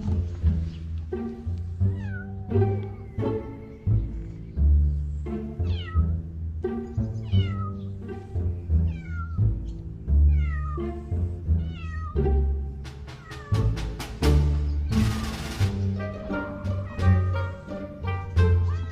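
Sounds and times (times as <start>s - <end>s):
background music: 0.0s - 18.9s
cat meowing: 1.9s - 3.2s, 5.6s - 6.2s, 7.2s - 7.9s, 8.8s - 9.5s, 10.3s - 10.8s, 11.6s - 12.2s, 13.1s - 13.8s, 16.7s - 17.6s, 18.4s - 18.9s.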